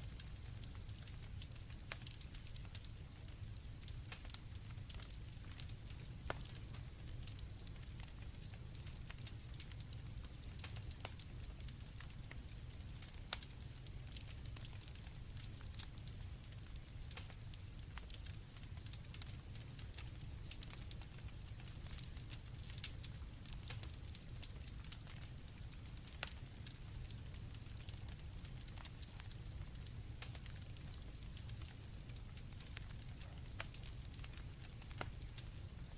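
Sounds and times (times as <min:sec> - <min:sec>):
campfire crackling and popping: 0:00.0 - 0:35.9.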